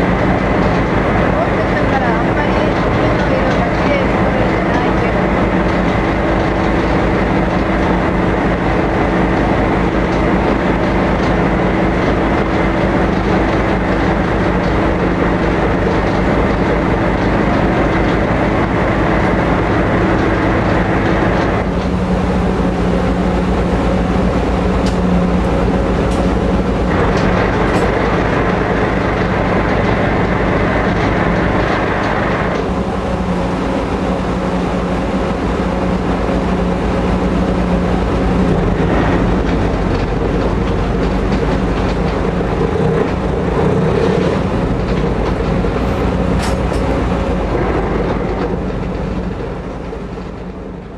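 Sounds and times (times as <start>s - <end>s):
ferry engines droning: 0.0s - 50.9s.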